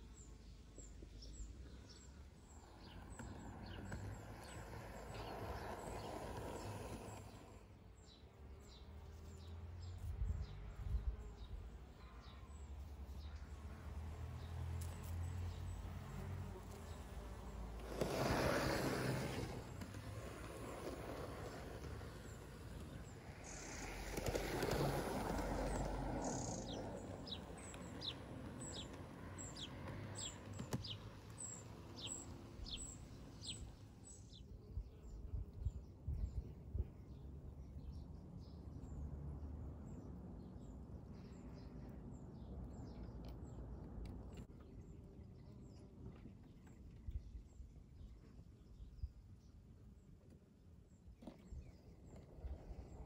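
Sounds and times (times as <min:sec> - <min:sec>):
small bird chirping: 0:17.9 - 0:36.4.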